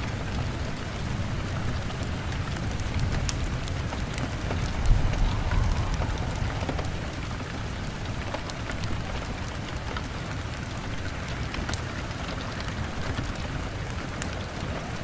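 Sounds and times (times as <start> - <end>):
rain on a window: 0.0 - 15.0
deep low rumble: 3.6 - 8.4.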